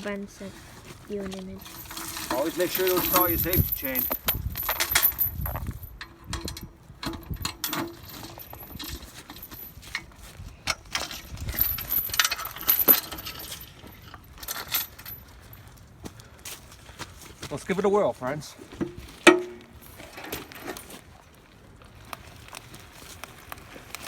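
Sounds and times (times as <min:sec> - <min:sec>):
metal chain clinking and rattling: 0:01.2 - 0:15.6, 0:19.2 - 0:21.0.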